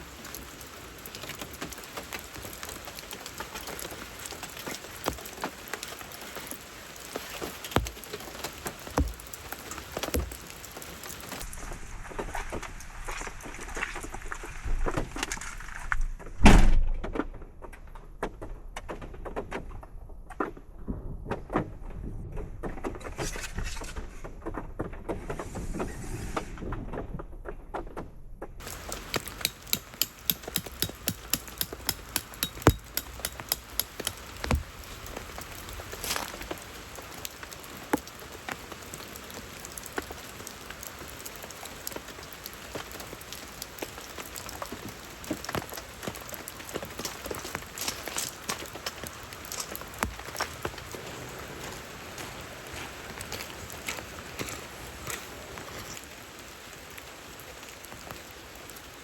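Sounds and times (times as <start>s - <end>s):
rain drops tapping on a surface: 0.0s - 11.6s, 28.6s - 59.0s
scattered knocks and thunks: 8.9s - 9.3s, 28.7s - 34.8s
loud thump: 16.4s - 17.0s.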